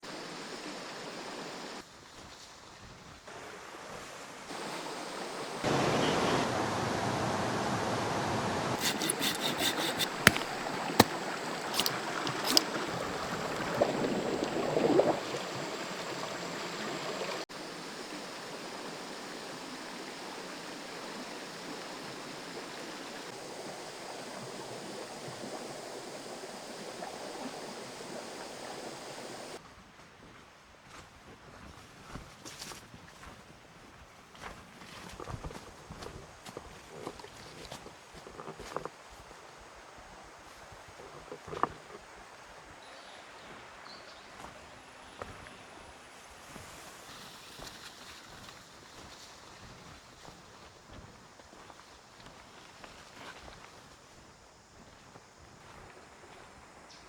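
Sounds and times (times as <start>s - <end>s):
stream water rushing: 0.1s - 1.8s, 3.3s - 29.6s.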